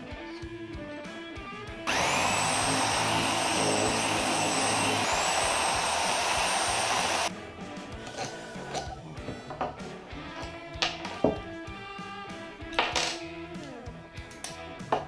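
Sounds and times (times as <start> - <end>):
power tool motor whine: 1.9 - 7.3.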